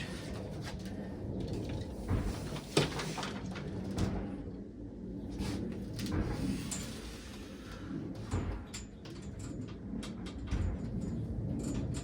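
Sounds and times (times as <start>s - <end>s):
low rumble: 3.4s - 12.0s.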